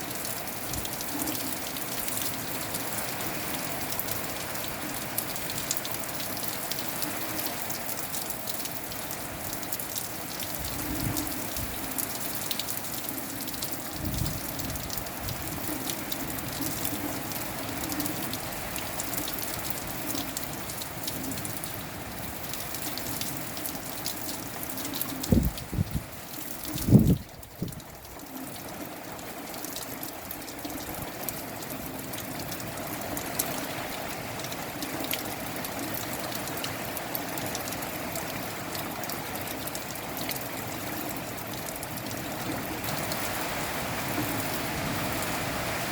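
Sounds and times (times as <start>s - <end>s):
rain falling: 0.0s - 45.9s
raindrops ticking on a surface: 0.0s - 45.9s
wind gusts: 10.5s - 12.1s, 13.9s - 16.9s, 25.2s - 28.0s, 42.8s - 45.9s.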